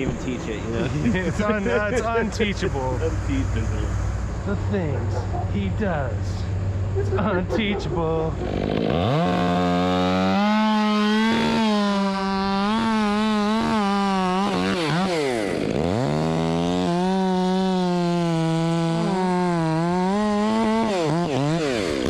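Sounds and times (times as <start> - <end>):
chainsaw revving: 7.3 - 22.0.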